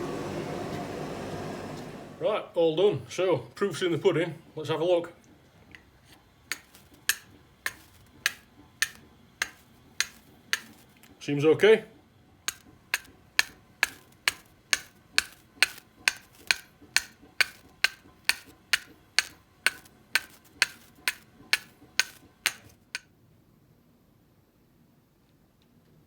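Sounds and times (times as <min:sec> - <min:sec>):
flint striking steel: 0:06.5 - 0:11.8, 0:12.5 - 0:23.1.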